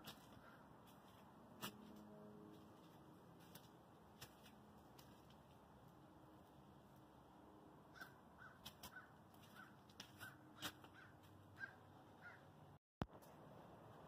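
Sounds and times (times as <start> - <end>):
faint bird calls: 7.9 - 12.5.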